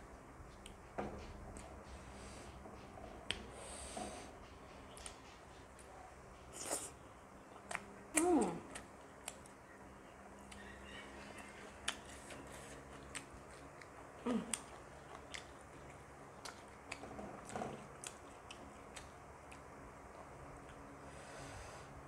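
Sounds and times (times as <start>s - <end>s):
people chewing and biting: 4.4s - 9.7s, 10.3s - 21.2s.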